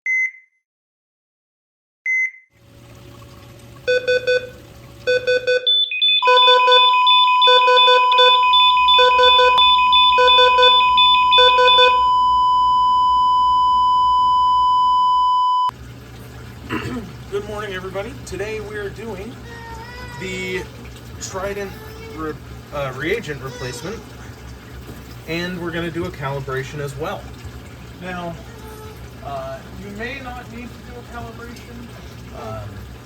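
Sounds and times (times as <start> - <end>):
long steady tone: 3.8 - 15.7
electronic beeps: 5.1 - 15.7.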